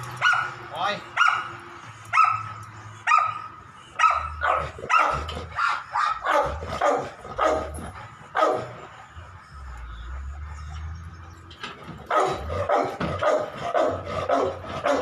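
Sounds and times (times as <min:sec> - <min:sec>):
dog barking: 0:00.2 - 0:00.6, 0:01.2 - 0:01.5, 0:02.1 - 0:08.8, 0:12.1 - 0:15.0.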